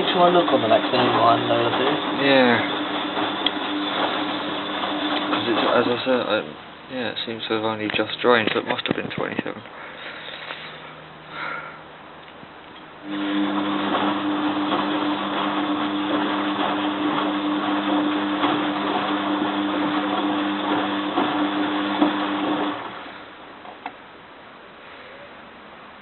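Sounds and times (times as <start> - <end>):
washing machine running: 0.0 - 7.2, 13.0 - 23.7.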